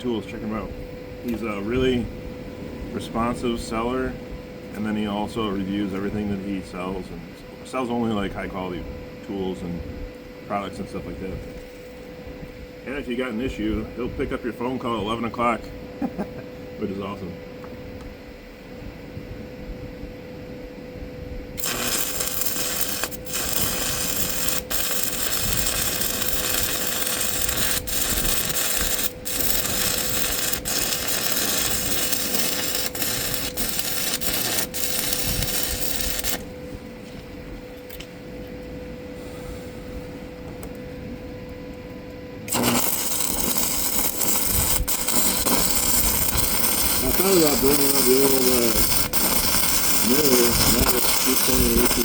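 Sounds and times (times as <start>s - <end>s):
stick welding arc crackling: 21.6s - 36.5s, 42.5s - 52.0s.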